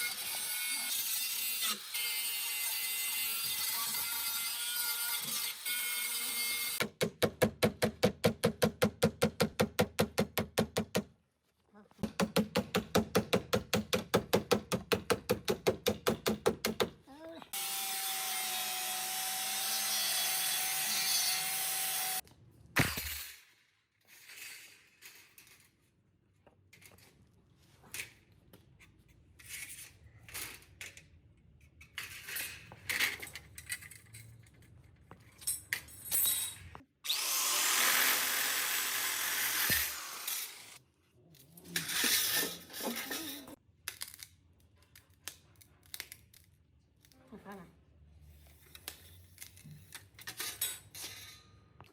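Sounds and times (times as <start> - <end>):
handheld power tool bursts: 37.0 - 40.8.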